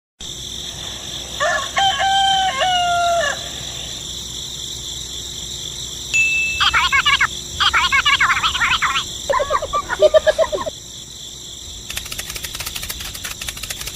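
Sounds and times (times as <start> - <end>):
rapid chirping: 5.5 - 10.9, 11.7 - 13.9.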